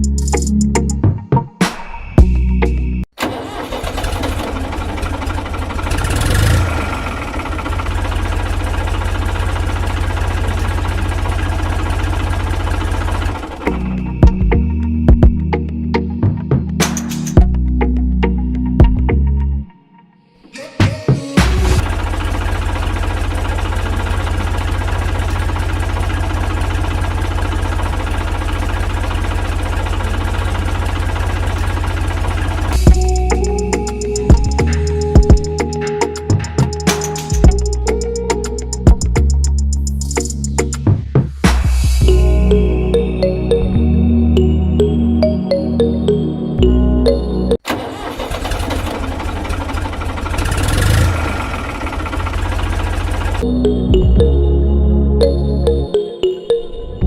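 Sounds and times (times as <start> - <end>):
tractor engine knocking: 3.2 - 14.6, 21.6 - 40.8, 47.7 - 53.4.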